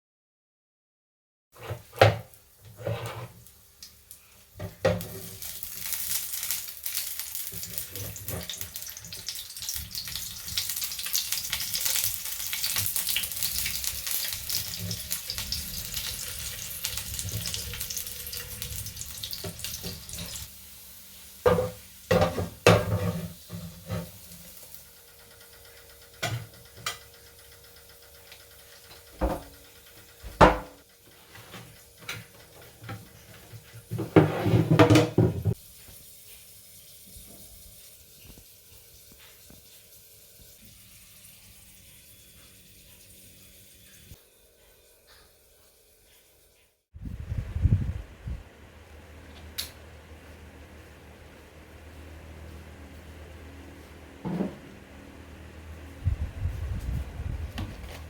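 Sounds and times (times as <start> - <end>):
food sizzling in a frying pan: 2.2 - 25.2
utensils clattering on cookware: 7.6 - 20.5, 21.5 - 24.2, 30.3 - 35.6.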